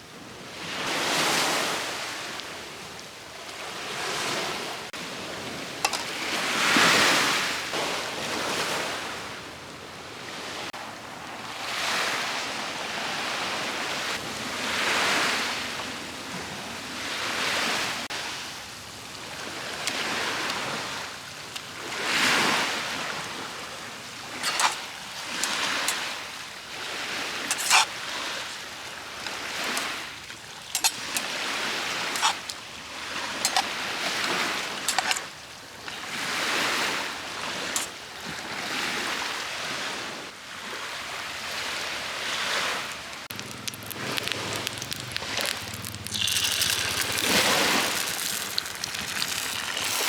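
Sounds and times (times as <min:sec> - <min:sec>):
small waves washing ashore: 0:00.0 - 0:50.0
sharp pops and crackles: 0:24.4 - 0:26.0, 0:43.3 - 0:50.0.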